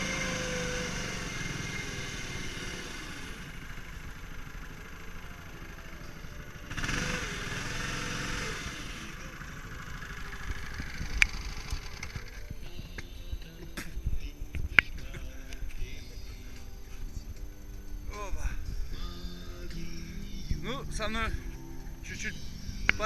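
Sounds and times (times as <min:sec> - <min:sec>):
outboard boat motor running: 0:00.0 - 0:13.5.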